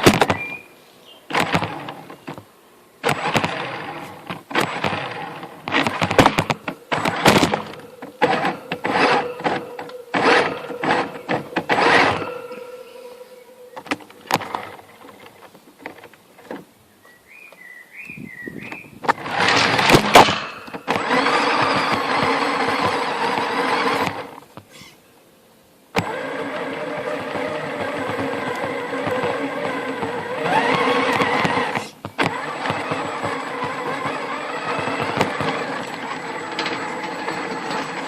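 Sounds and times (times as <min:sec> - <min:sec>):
electric motor whining: 0:01.3 - 0:02.4, 0:03.0 - 0:16.0, 0:19.0 - 0:24.4, 0:26.0 - 0:38.0
clicks: 0:01.3 - 0:12.8
tyres scrabbling for grip: 0:01.3 - 0:16.7, 0:26.0 - 0:38.0.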